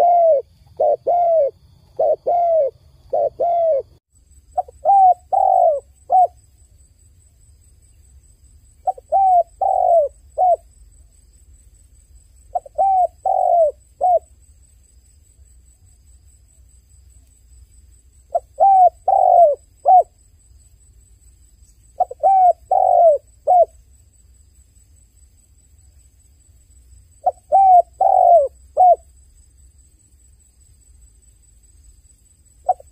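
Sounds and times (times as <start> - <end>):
dove cooing: 0.0 - 4.0, 4.6 - 6.4, 8.8 - 10.6, 12.5 - 14.3, 18.3 - 20.2, 22.0 - 23.7, 27.2 - 29.0, 32.6 - 32.9.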